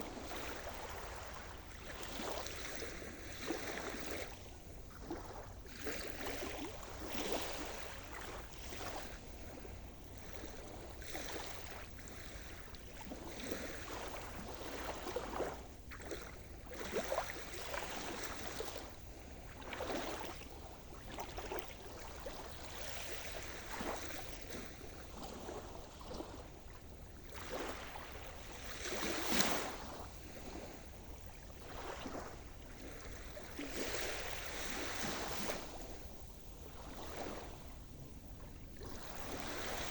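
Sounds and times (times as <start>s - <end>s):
waves washing in: 27.2s - 39.9s.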